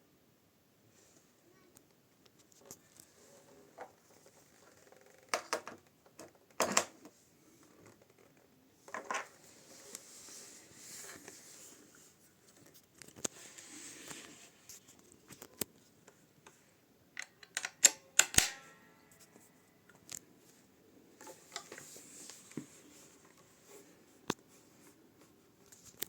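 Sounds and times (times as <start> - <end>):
faint white-noise hiss: 0.0 - 26.0
guitar switch clicks: 17.5 - 18.6.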